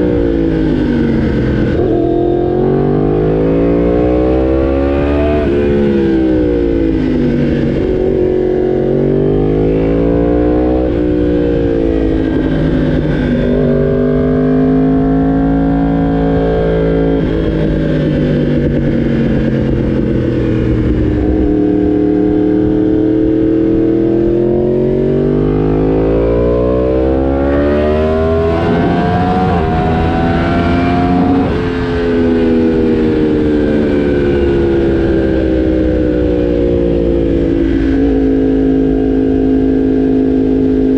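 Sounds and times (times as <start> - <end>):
motorcycle engine running hard: 0.0 - 40.9.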